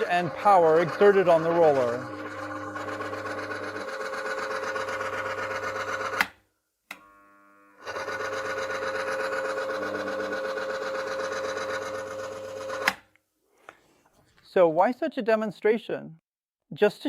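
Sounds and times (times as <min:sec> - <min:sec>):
electric motor humming: 0:00.0 - 0:06.3, 0:06.9 - 0:13.0.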